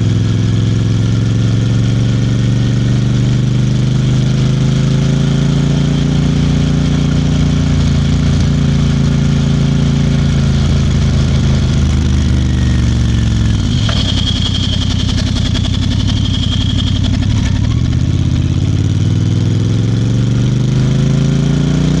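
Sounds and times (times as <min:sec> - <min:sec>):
motorcycle engine: 0:00.0 - 0:22.0
thin high tone: 0:12.3 - 0:18.1.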